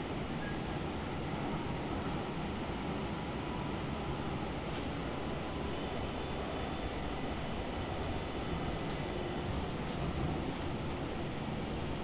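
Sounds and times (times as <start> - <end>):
train car rumble and hiss: 0.0 - 12.0.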